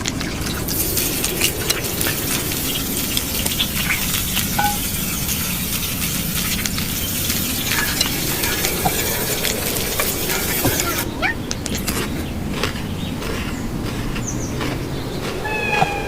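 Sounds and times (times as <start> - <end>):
crackles and pops: 0.0 - 13.4
food sizzling in a pan: 0.2 - 11.1.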